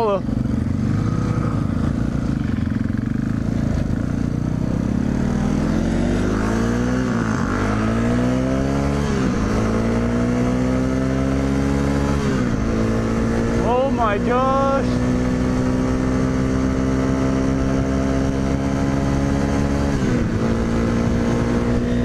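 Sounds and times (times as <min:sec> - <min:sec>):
motorcycle engine accelerating: 0:00.0 - 0:22.0
wind rushing over microphone: 0:14.8 - 0:22.0.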